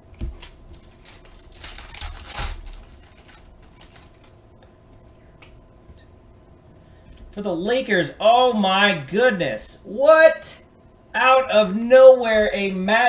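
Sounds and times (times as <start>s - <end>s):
cards sliding rustle: 0.0s - 4.4s
cards clicking and tapping: 0.1s - 4.3s.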